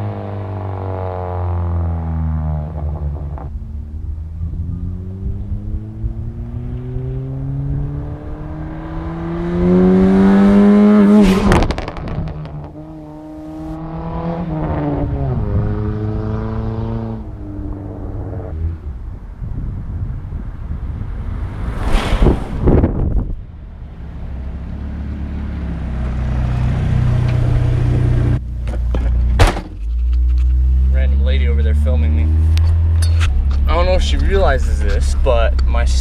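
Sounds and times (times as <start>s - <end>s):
car engine accelerating hard: 0.0s - 18.8s
loud rush of noise: 21.1s - 23.4s.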